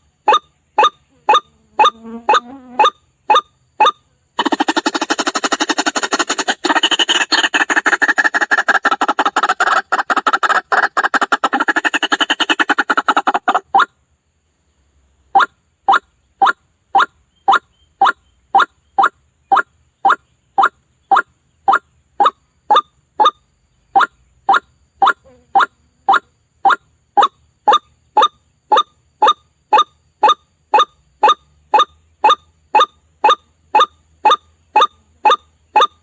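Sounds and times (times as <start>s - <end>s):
waterhen calls: 0.2s - 13.9s, 15.3s - 36.0s.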